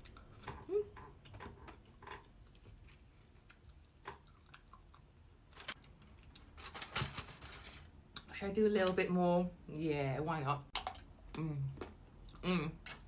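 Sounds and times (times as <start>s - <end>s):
chewing with mouth clicks: 2.4s - 5.2s.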